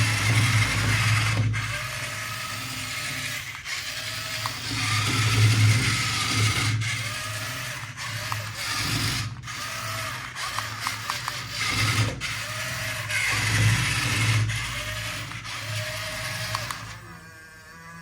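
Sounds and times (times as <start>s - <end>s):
toy motor whirring: 0.0s - 18.0s.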